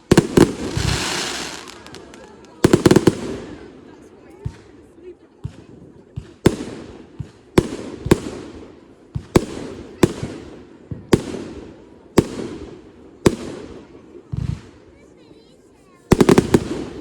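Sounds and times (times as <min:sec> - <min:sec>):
fireworks bangs: 0:00.0 - 0:03.7.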